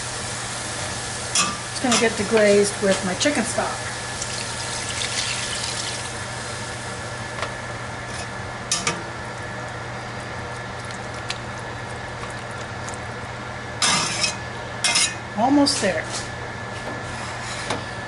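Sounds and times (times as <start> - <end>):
food sizzling in a pan: 0.0 - 7.0.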